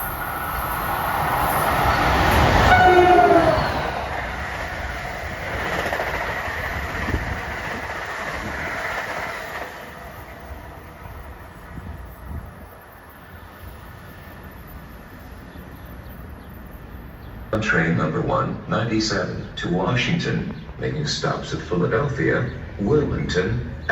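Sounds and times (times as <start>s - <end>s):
train passing at speed: 0.0s - 23.9s
train horn blast: 2.4s - 4.1s.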